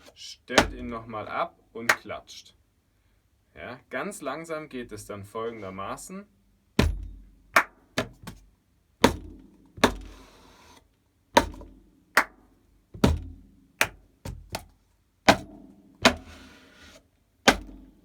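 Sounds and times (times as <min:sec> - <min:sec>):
hand claps: 0:07.6 - 0:08.2, 0:12.2 - 0:12.4, 0:13.8 - 0:14.0
hand slaps on table: 0:13.8 - 0:14.7.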